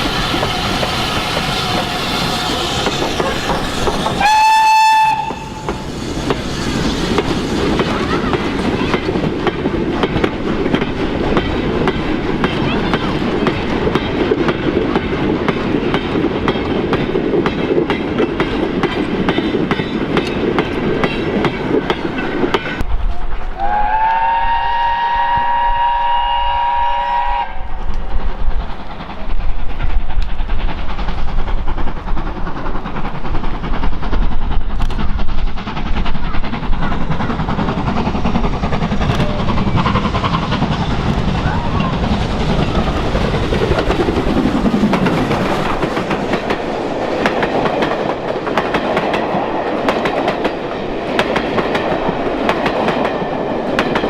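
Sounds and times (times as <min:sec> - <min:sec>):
train running with rhythmic clatter: 0:00.0 - 0:54.0
steam locomotive whistle: 0:00.2 - 0:05.9, 0:23.6 - 0:27.9.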